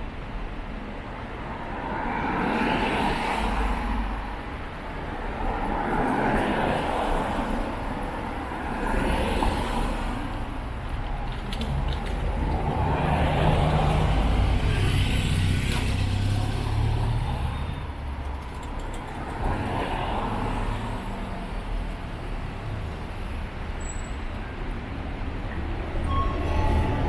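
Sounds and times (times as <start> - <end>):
vehicles passing: 0.2 - 27.0.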